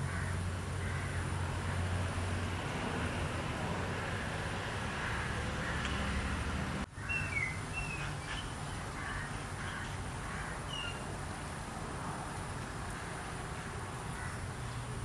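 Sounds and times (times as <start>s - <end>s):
bird chirps: 7.0s - 10.0s, 10.7s - 11.1s.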